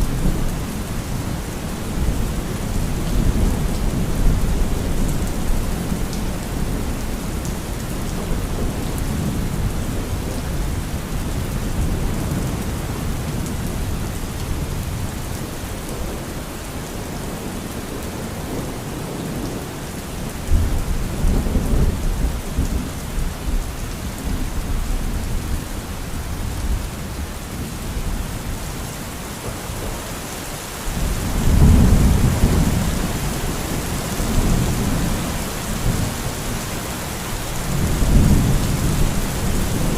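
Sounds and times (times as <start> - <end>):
heavy rain: 0.0 - 39.9
rolling thunder: 31.0 - 36.3.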